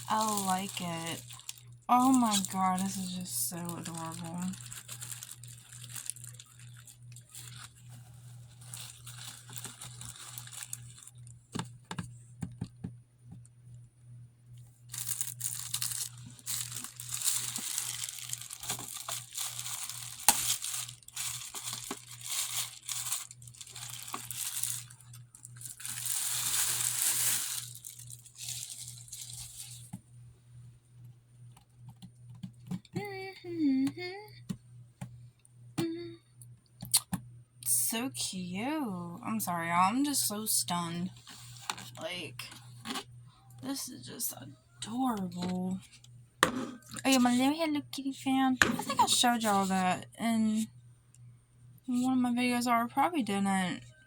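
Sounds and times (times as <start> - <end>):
packaging crinkling and tearing: 0.0 - 11.4, 14.9 - 30.0
low steady hum: 0.0 - 54.0.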